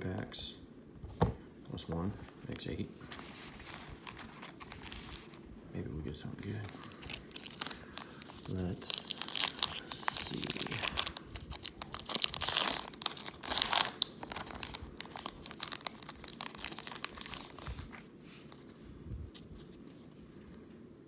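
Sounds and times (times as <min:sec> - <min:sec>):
wrapper crinkling: 0:03.0 - 0:05.4, 0:06.4 - 0:18.7
wrapper tearing: 0:03.2 - 0:05.4, 0:06.4 - 0:18.1.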